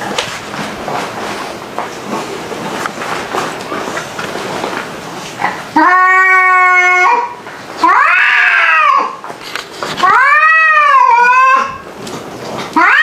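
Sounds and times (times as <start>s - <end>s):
cats yowling: 5.7s - 9.2s, 10.0s - 11.9s, 12.7s - 13.0s.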